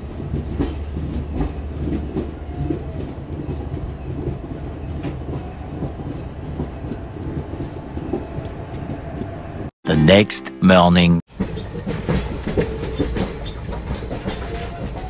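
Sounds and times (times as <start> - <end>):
wheels clacking over rail joints: 0.0 - 9.7, 11.3 - 15.0
train coaches rumbling: 0.0 - 15.0.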